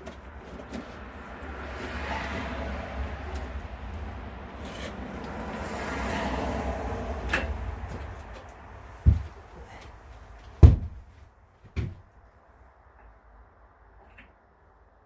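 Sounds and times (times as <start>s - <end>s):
rumbling shuffle: 7.7s - 12.2s
dull low thumps: 10.6s - 11.2s.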